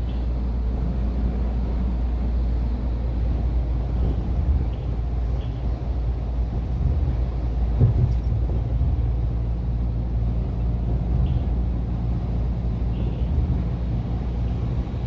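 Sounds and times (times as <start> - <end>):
truck engine rumbling: 0.0 - 15.0
truck bump: 7.7 - 8.6.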